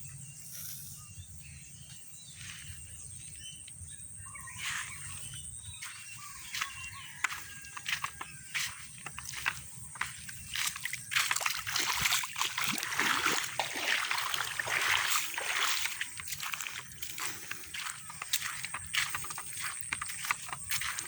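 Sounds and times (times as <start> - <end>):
water sloshing and splashing: 6.4 - 21.0.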